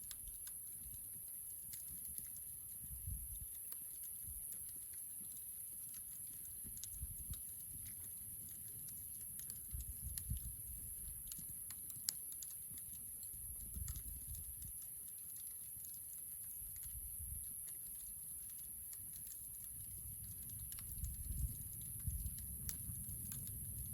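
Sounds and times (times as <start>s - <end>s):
campfire crackling: 0.0s - 23.9s
soft low rumbles: 19.9s - 23.9s.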